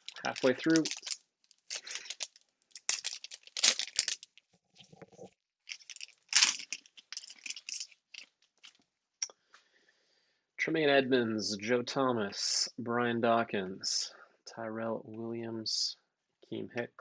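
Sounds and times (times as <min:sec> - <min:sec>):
wrapper tearing and crinkling: 0:00.0 - 0:04.4, 0:05.7 - 0:08.8
cards rustling: 0:00.0 - 0:05.0, 0:05.7 - 0:08.8.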